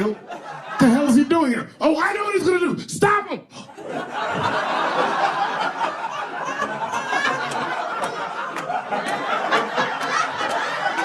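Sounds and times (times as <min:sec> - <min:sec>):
audience laughing and cheering: 0:00.0 - 0:01.6, 0:03.7 - 0:11.0
people clapping: 0:04.4 - 0:11.0.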